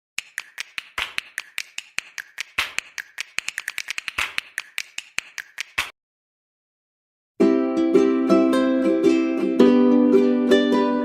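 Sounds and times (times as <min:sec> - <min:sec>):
rapid sharp clicks: 0:00.2 - 0:05.9.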